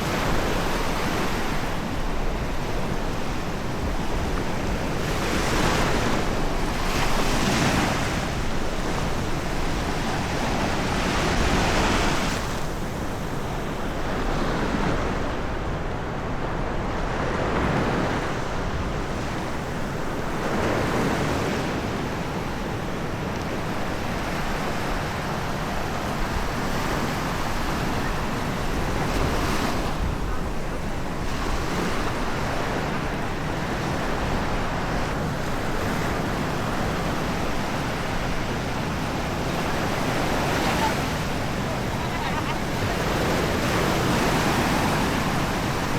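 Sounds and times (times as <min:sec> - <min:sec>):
waves breaking on a beach: 0:00.0 - 0:45.9.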